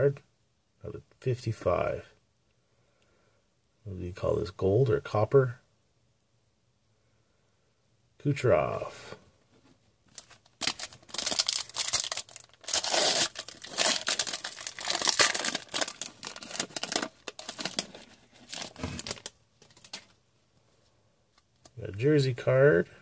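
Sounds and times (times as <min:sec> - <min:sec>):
foil wrapper tearing and crinkling: 0:10.2 - 0:20.0.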